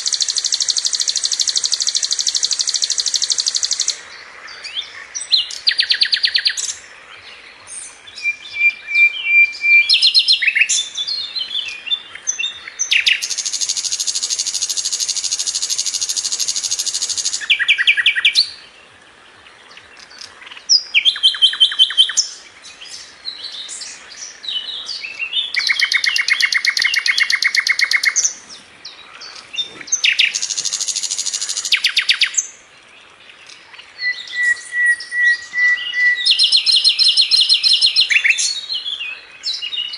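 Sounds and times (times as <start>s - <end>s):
flycatcher rattling trills: 0.0s - 4.0s
bird chirps: 0.0s - 18.7s, 19.7s - 32.6s, 33.3s - 39.9s
thin bird whistles: 34.0s - 38.3s.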